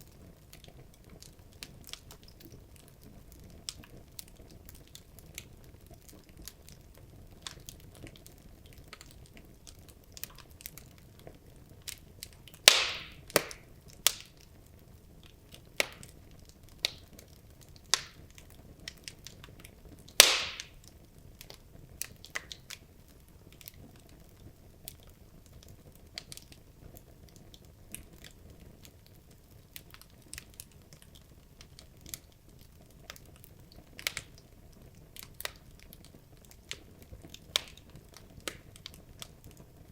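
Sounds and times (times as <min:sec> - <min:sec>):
faint fire hiss: 0:00.0 - 0:39.9
wood logs crackling in fireplace: 0:00.0 - 0:39.9
loud fire pops: 0:12.0 - 0:14.6, 0:15.3 - 0:22.9, 0:35.1 - 0:39.9.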